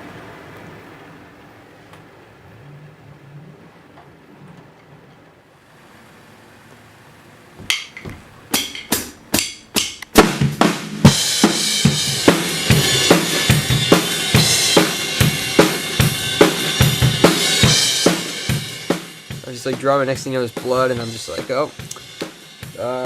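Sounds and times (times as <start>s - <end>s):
drum kit beat: 7.6s - 23.0s
cymbals: 7.7s - 23.0s.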